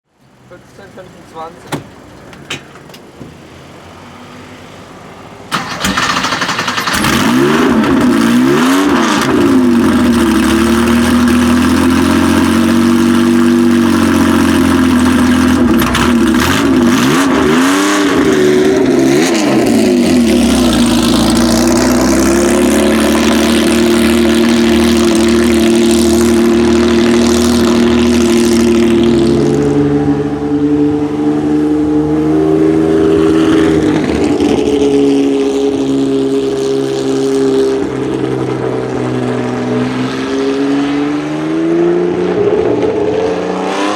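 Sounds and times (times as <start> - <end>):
car engine idling: 0.2 - 4.0, 4.8 - 31.2
car engine starting: 0.2 - 43.9.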